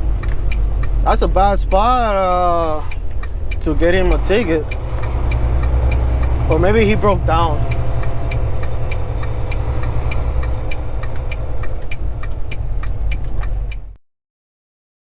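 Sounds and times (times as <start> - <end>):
truck engine and road drone: 0.0 - 14.0
light regular clicking: 2.9 - 3.8, 4.6 - 6.4, 7.6 - 13.9.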